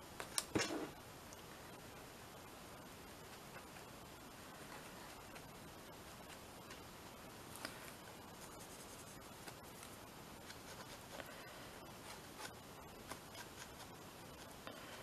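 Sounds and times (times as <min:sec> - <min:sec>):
art tool scratching paper: 0:10.4 - 0:14.6.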